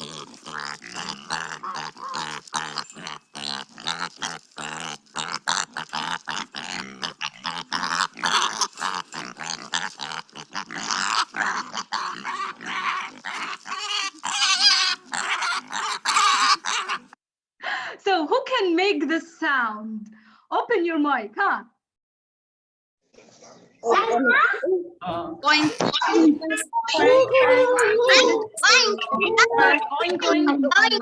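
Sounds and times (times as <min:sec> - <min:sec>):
pig grunting: 0:00.0 - 0:17.2.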